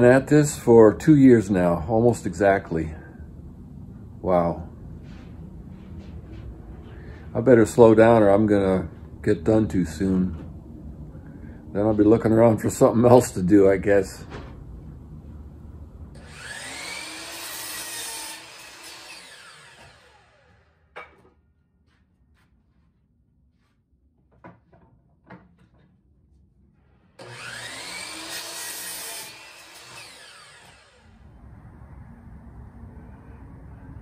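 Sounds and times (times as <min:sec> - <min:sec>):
miter saw cutting wood: 0:16.2 - 0:20.7, 0:27.2 - 0:31.2.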